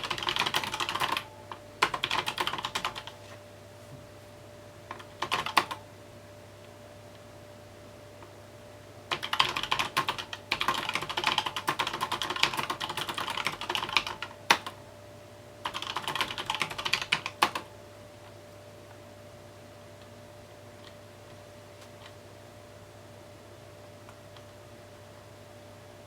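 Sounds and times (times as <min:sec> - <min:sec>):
mechanical keyboard typing: 0:00.0 - 0:03.2, 0:04.9 - 0:05.8, 0:09.1 - 0:14.8, 0:15.6 - 0:17.7.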